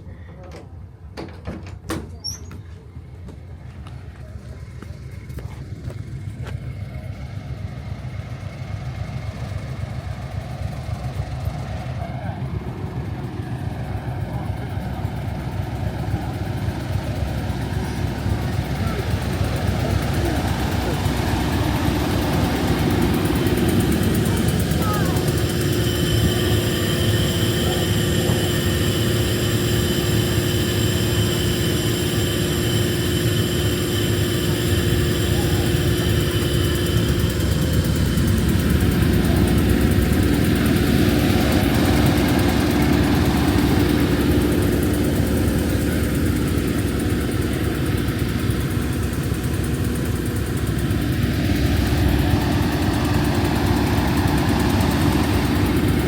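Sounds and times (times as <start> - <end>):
diesel train engine rumble: 0.0 - 56.0
steady whine: 2.7 - 56.0.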